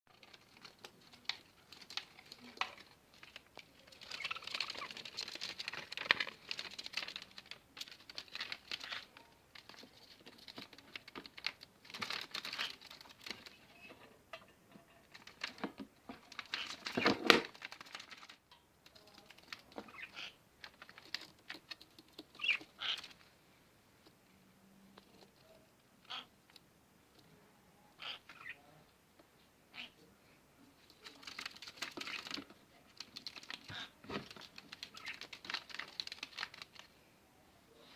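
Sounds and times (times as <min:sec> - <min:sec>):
tapping and scratching: 0:00.1 - 0:23.2, 0:30.8 - 0:36.9
parrots chattering: 0:22.4 - 0:23.1, 0:26.0 - 0:26.3, 0:28.0 - 0:28.6.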